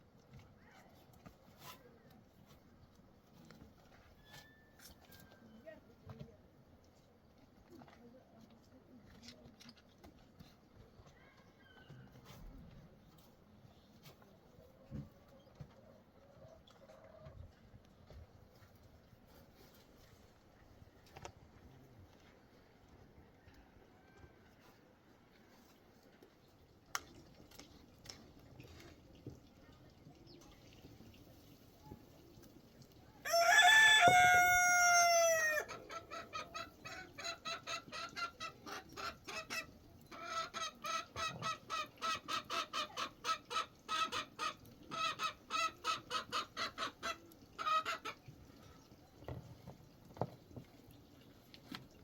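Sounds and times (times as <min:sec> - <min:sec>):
rooster crowing: 0:33.2 - 0:35.7
chicken clucking: 0:33.3 - 0:48.3.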